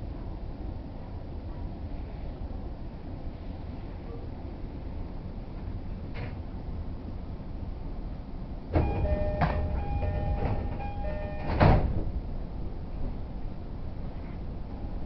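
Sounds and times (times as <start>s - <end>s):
low hum of train: 0.0s - 15.0s
two-tone electronic chime: 8.8s - 11.8s
sliding doors closing with thud: 8.8s - 12.2s.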